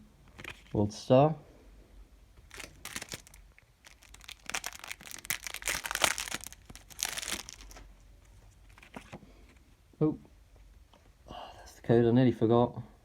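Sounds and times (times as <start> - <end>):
foil pack tearing and crinkling: 2.5 - 7.8.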